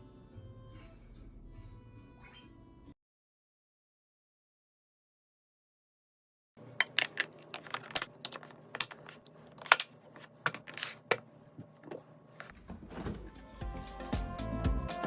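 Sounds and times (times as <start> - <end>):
kitchenware clinking: 6.7 - 12.5.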